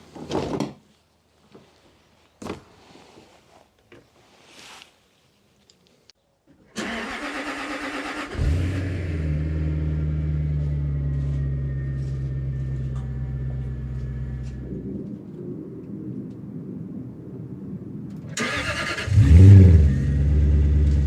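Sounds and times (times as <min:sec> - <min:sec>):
car engine starting and idling: 0:06.8 - 0:14.8, 0:18.3 - 0:21.0.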